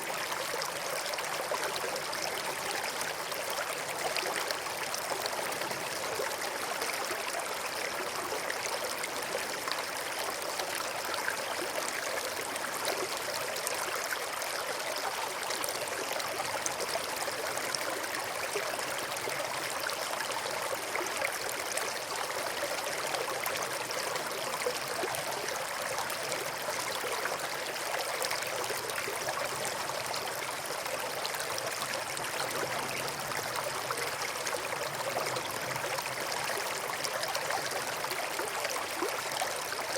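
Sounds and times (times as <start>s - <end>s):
river water over rocks: 0.0s - 39.9s.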